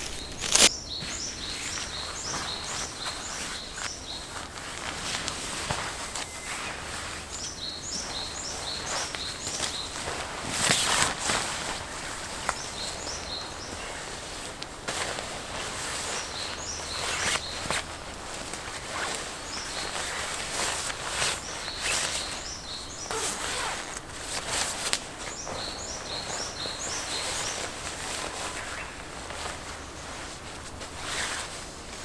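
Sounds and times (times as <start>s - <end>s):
birds chirping: 0.0s - 5.2s, 5.8s - 10.2s, 11.9s - 14.2s, 25.2s - 30.2s
rustling: 0.0s - 22.4s, 23.1s - 32.0s.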